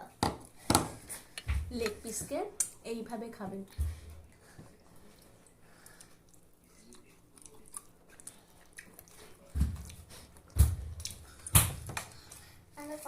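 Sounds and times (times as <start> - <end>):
person chewing: 5.0 - 12.6.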